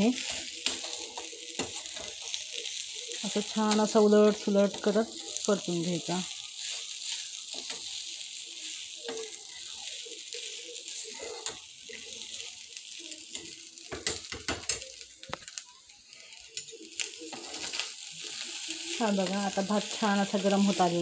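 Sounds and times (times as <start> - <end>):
rice sizzling in a pan: 0.0 - 21.0
steel spoon scraping a pan: 0.2 - 12.4.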